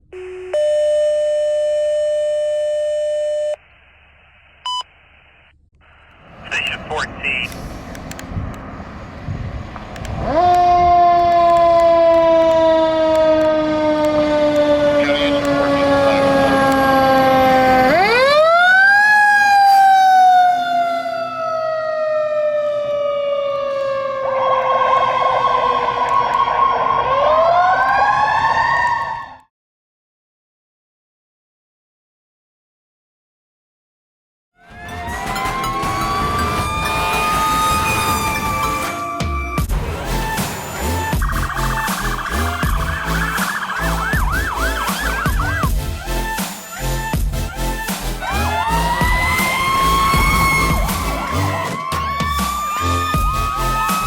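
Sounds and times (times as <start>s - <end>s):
two-tone radio page: 3.5s - 7.6s
radio hiss: 3.6s - 7.8s
brief beep: 4.7s - 4.9s
mechanical siren wailing: 10.1s - 29.4s, 34.6s - 54.0s
steady siren tone: 10.2s - 29.4s, 34.6s - 54.0s.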